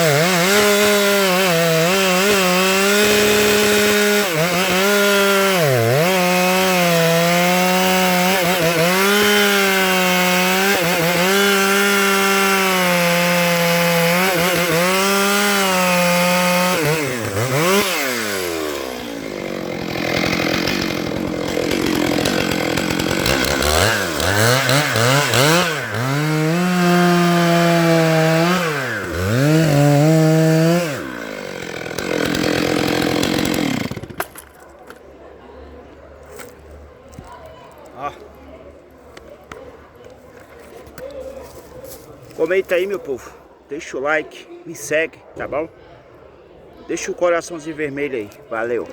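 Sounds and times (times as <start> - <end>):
chainsaw cutting log: 0.0 - 35.0.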